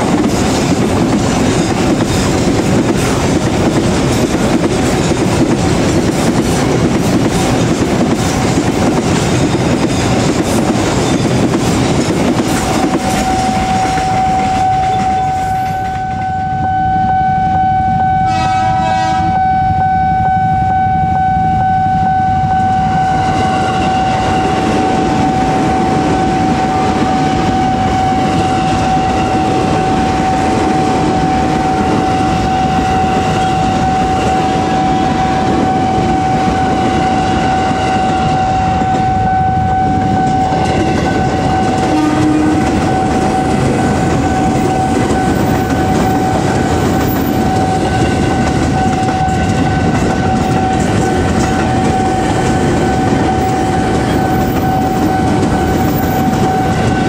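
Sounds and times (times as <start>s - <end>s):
train wheels clattering on rails: 0.0s - 16.4s, 22.5s - 57.0s
level crossing warning tone: 12.7s - 57.0s.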